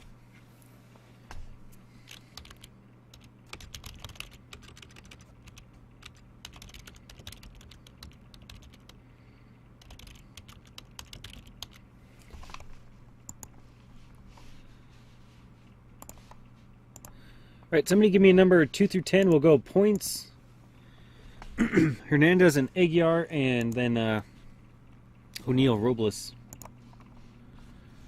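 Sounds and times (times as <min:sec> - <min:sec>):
low electrical hum: 0:00.0 - 0:28.0
typing on computer keyboard: 0:02.1 - 0:09.0, 0:09.8 - 0:11.8.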